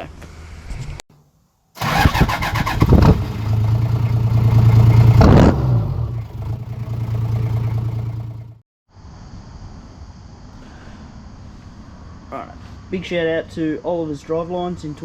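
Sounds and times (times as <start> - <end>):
diesel engine cranking and idling: 1.8 - 8.6.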